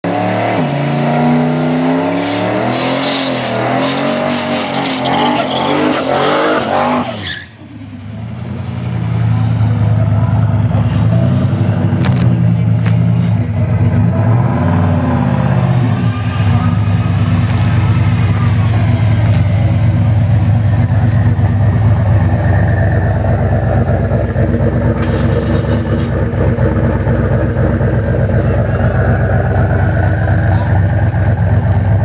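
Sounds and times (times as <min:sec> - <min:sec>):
car engine revving: 0:00.0 - 0:32.0
tyres squealing: 0:02.6 - 0:07.6.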